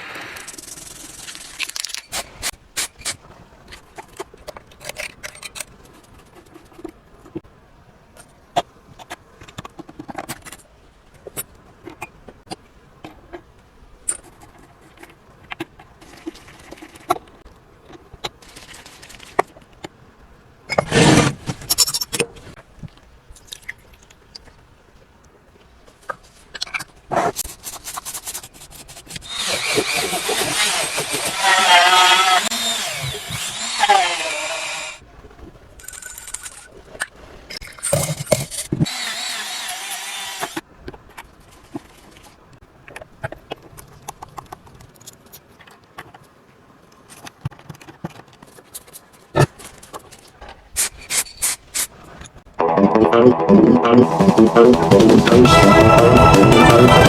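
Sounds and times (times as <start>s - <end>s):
small metal parts clicking: 0.4s - 2.2s, 35.8s - 36.7s
loud rasping scrape: 27.1s - 35.0s.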